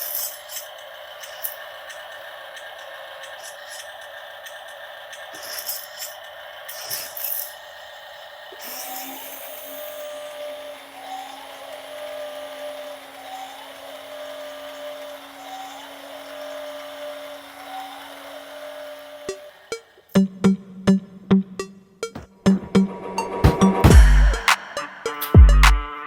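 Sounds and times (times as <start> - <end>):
toy truck electric motor whining: 0.0 - 20.2
higher rising whine: 22.0 - 26.0.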